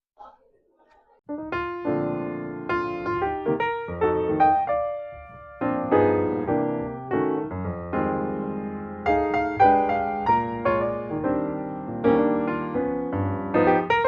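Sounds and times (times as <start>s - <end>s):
piano music: 1.3s - 14.0s.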